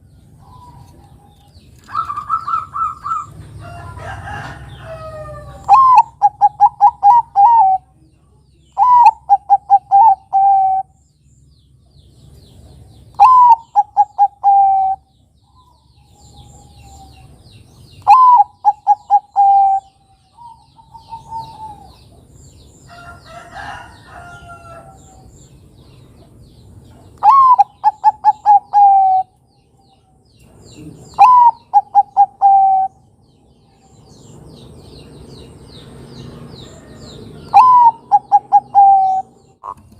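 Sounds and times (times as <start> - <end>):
small birds chirping: 0.0 - 39.9
dove cooing: 0.4 - 3.5, 4.3 - 8.0, 8.8 - 10.9, 13.2 - 15.1, 18.0 - 22.2, 27.2 - 29.4, 30.8 - 33.0, 36.8 - 39.9
rough bird call: 0.4 - 7.8, 27.2 - 29.4, 36.1 - 39.9.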